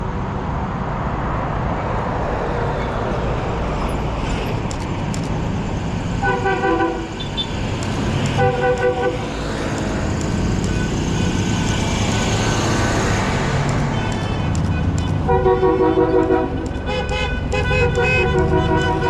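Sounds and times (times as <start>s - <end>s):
truck engines rumbling: 0.0s - 19.0s
truck air horn blasts: 6.2s - 7.5s, 8.4s - 9.3s, 13.9s - 19.0s.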